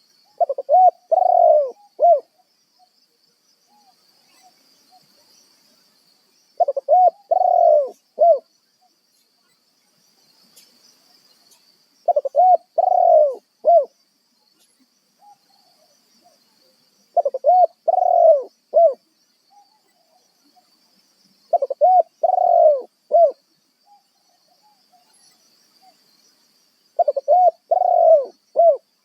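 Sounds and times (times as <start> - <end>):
dove cooing: 0.0 - 2.4, 6.6 - 8.5, 12.1 - 14.0, 17.2 - 19.7, 21.5 - 24.0, 27.0 - 28.9.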